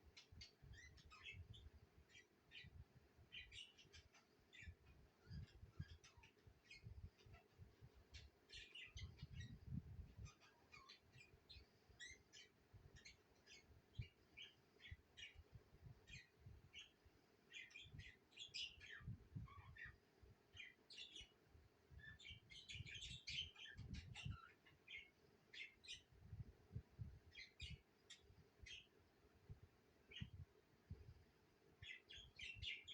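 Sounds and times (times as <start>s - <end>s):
budgerigars chirping and chattering: 3.4s - 7.4s, 10.2s - 11.3s.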